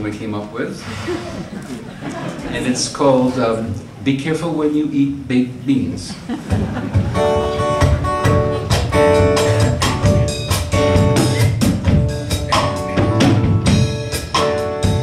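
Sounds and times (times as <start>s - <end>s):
band playing calypso music: 6.5s - 15.0s.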